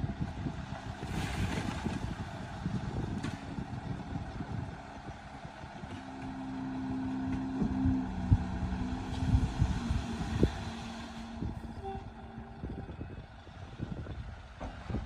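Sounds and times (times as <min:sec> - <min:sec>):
diesel machinery rumbling: 0:00.0 - 0:15.0
engine tone shifting pitch: 0:05.7 - 0:14.0.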